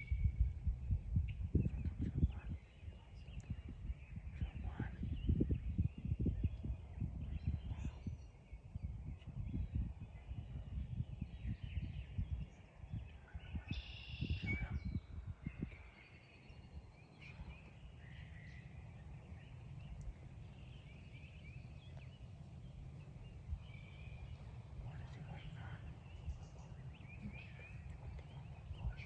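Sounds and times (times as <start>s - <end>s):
wind or mic thumps: 0.0s - 15.9s, 21.8s - 29.0s
low rumble: 14.3s - 29.0s.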